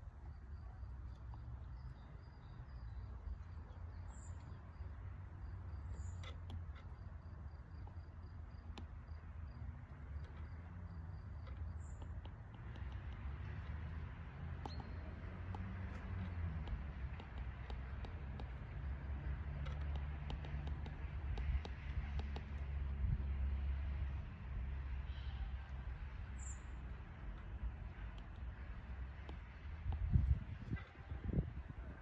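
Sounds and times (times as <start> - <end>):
bird chirps: 0.3 - 5.0, 5.6 - 7.0, 14.6 - 16.4, 25.0 - 28.4.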